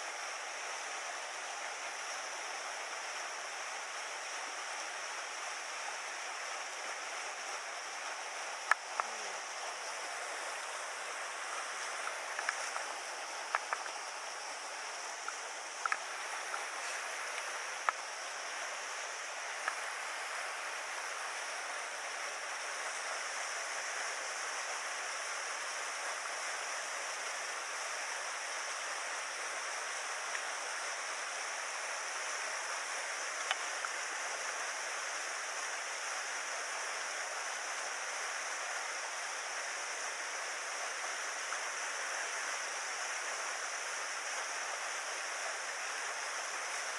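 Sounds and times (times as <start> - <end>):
mountain stream flowing: 0.0 - 46.9
light clicks: 13.5 - 14.0, 15.2 - 16.6.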